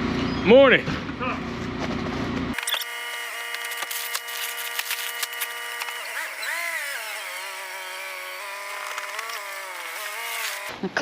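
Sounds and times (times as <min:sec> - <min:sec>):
small engine whining: 0:02.5 - 0:10.7.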